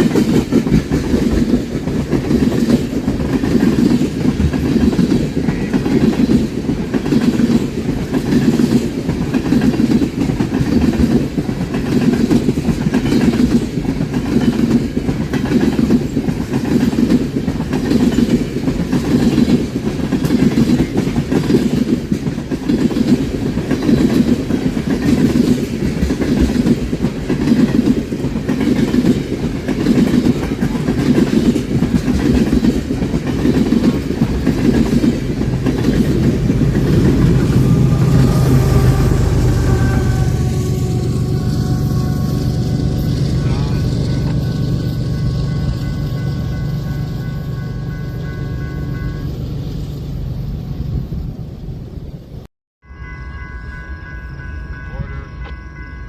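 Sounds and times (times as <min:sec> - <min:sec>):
wheels clicking over rail joints: 0:00.0 - 0:38.9
railroad cars rumbling past: 0:00.0 - 0:56.0.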